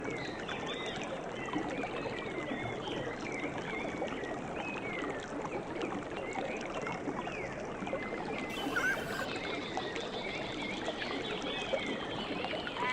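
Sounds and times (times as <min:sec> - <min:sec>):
running water: 0:07.0 - 0:12.9
high chirping calls: 0:08.5 - 0:09.3.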